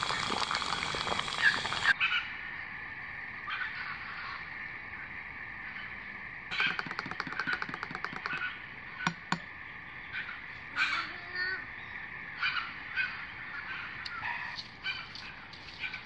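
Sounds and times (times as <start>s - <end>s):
wild birds calling: 5.8s - 16.0s
sharp clicks: 6.5s - 8.5s.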